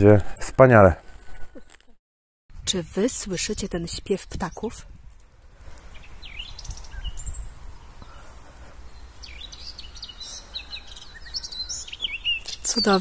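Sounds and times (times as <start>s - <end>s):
songbirds chirping and whistling: 5.6s - 13.0s.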